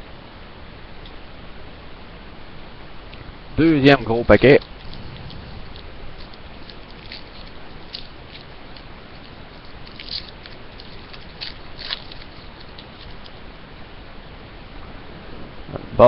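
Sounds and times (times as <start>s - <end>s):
faint steady hiss: 0.0s - 16.0s
card wrapper crinkling: 4.4s - 13.5s.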